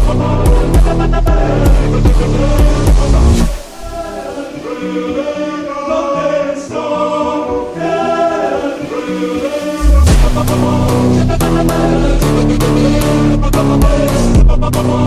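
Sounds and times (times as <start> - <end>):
heavy electronic beat: 0.0 - 4.6, 8.8 - 14.7
choir-like singing: 0.0 - 15.0.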